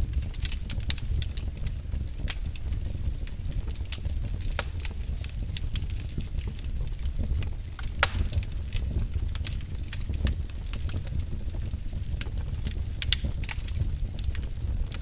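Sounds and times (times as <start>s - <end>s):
fire low rumble: 0.0s - 15.0s
wood fire crackling and popping: 0.0s - 15.0s.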